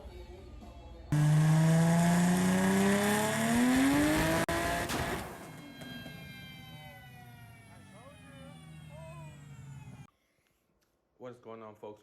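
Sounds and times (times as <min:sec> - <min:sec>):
car engine accelerating: 0:01.2 - 0:05.5.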